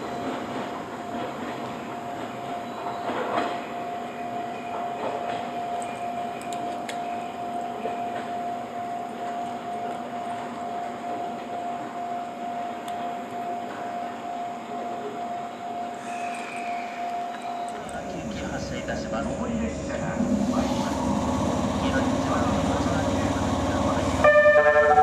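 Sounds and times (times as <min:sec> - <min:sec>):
electric train running by: 0:00.0 - 0:25.0
high rail tone: 0:00.0 - 0:25.0.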